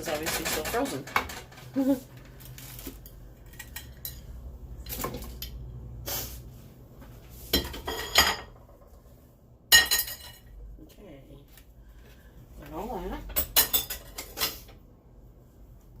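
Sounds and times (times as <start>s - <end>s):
cookware and utensils clinking: 0.0s - 5.7s, 7.5s - 9.0s, 9.7s - 10.6s, 13.1s - 14.8s.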